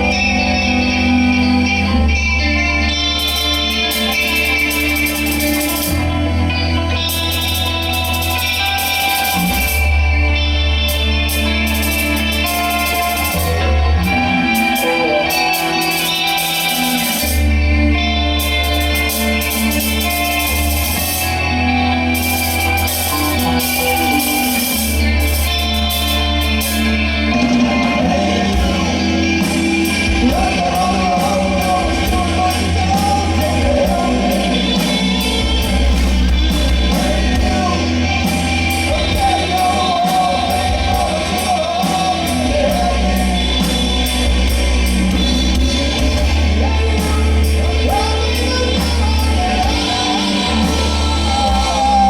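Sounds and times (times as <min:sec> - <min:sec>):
bass guitar: 0:00.0 - 0:52.0
drums: 0:00.0 - 0:52.0
electric guitar: 0:00.0 - 0:52.0
lead vocal singing: 0:11.3 - 0:52.0.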